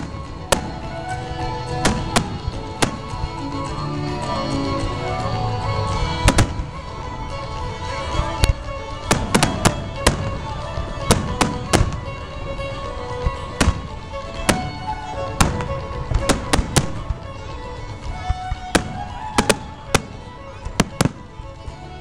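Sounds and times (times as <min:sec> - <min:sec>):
fireworks bangs: 0:00.0 - 0:04.8, 0:05.9 - 0:21.7
steady music: 0:00.0 - 0:22.0.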